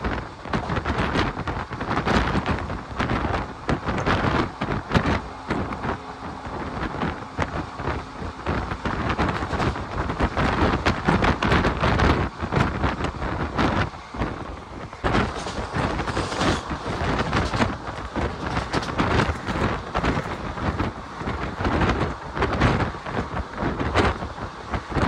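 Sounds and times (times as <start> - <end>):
moving train running noise: 0.0 - 25.0
wind buffeting microphone: 0.0 - 25.0.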